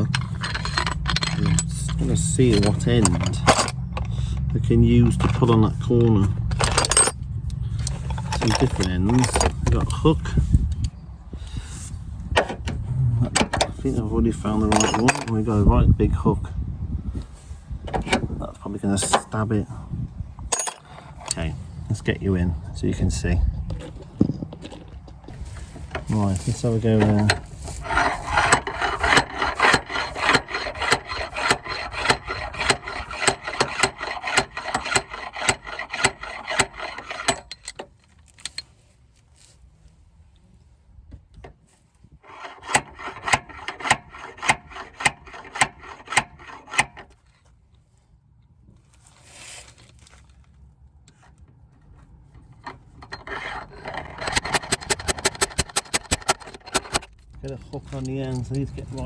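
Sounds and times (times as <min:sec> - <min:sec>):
dent puller ratchet clicks: 0:52.6 - 0:57.1.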